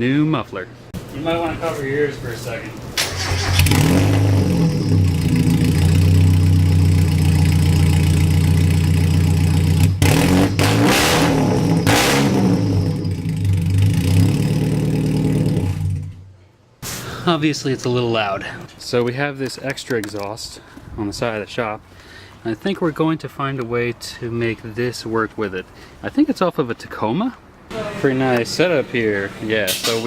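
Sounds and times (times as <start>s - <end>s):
car engine idling and revving: 3.0s - 16.3s.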